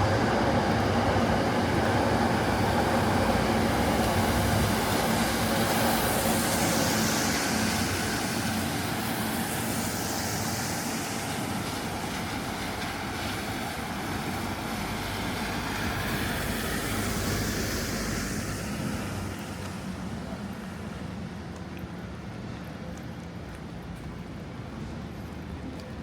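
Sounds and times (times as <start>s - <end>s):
passing vehicles rumbling: 0.0s - 9.0s, 12.1s - 20.8s
tyres hissing on wet road: 0.0s - 22.3s.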